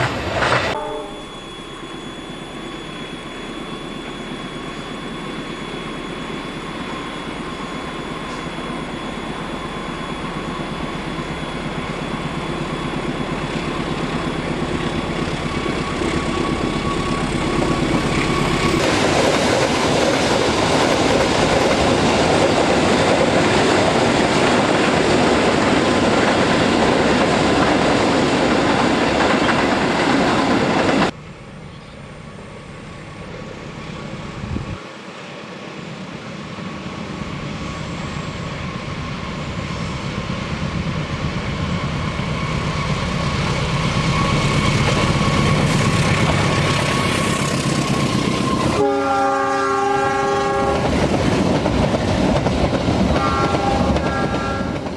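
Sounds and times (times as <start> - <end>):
train wheels on rails: 0.0 - 54.9
train horn: 0.6 - 1.6, 47.9 - 51.0, 53.1 - 54.9.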